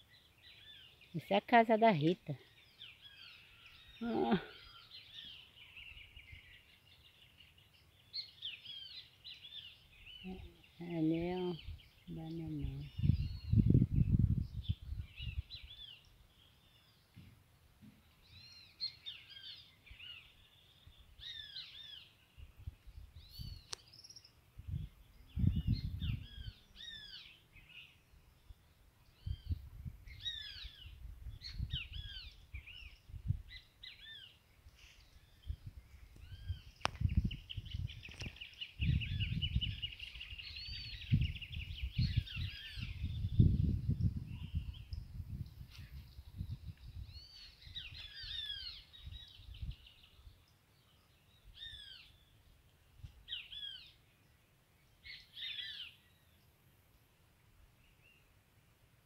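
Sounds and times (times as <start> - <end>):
birds chirping and calling: 0.1 - 17.3, 18.0 - 52.6, 53.3 - 54.1, 54.8 - 56.4
low rumbles on microphone: 12.6 - 15.7, 24.6 - 26.6, 35.2 - 48.0
bird trill: 47.1 - 50.1, 53.3 - 54.0.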